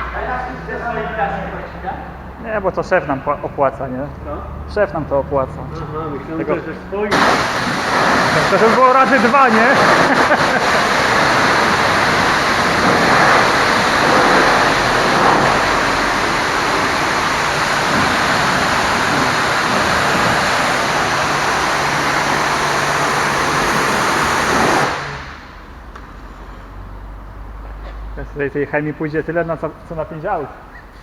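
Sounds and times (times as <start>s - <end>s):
pressure washer spraying water: 7.0s - 25.5s.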